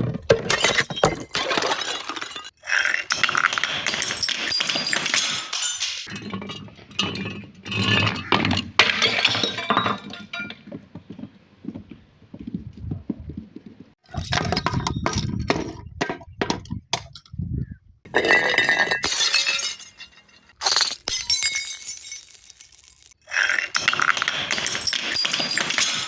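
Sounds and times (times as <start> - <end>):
glass breaking: 0.3 - 10.6, 18.1 - 26.0
glass bottles clinking together: 0.3 - 10.7, 18.1 - 26.0.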